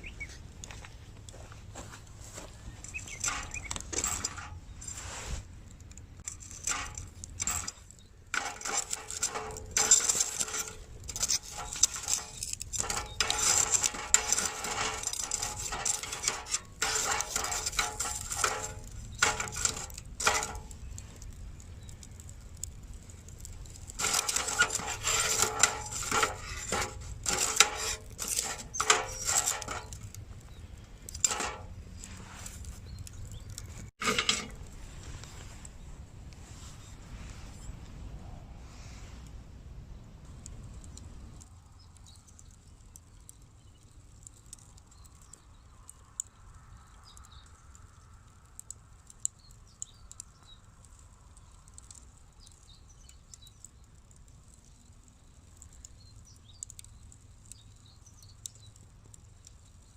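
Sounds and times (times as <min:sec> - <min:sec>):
small metal objects clinking: 0:05.8 - 0:21.0, 0:23.5 - 0:30.2.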